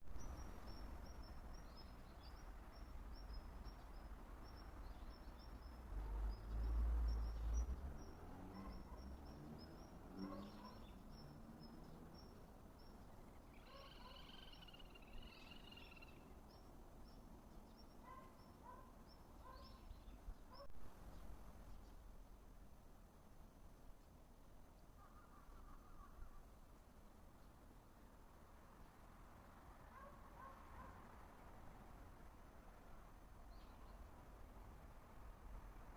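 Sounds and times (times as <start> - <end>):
small birds chirping: 0.1 - 22.1
bird warbling call: 13.5 - 16.2.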